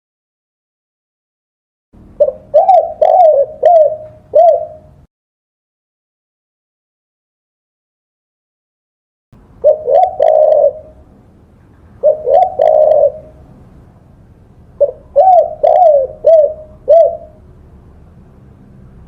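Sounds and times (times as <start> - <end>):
dove cooing: 2.2 - 5.0, 9.6 - 11.1, 11.9 - 13.6, 14.8 - 17.4.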